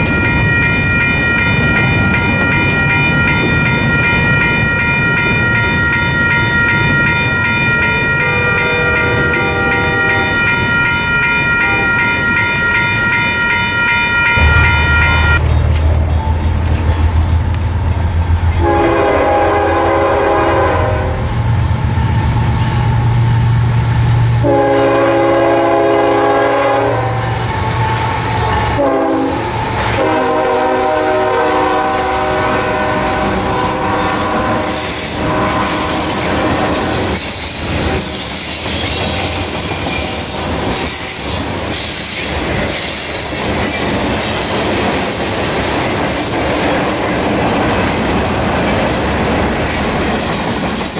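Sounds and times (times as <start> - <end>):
diesel locomotive horn: 8.2 - 10.6, 11.6 - 12.0, 14.3 - 21.6, 22.6 - 37.2
freight cars clattering: 14.4 - 18.6
low engine rumble: 14.4 - 19.4.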